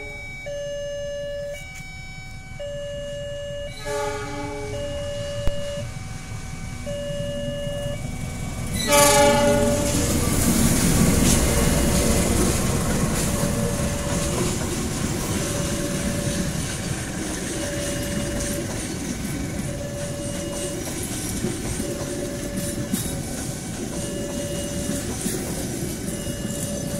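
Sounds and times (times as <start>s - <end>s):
train engine and wheels rumbling: 0.0s - 26.9s
two-tone crossing alarm: 0.0s - 26.9s
locomotive horn blast: 3.7s - 5.9s, 8.7s - 10.3s.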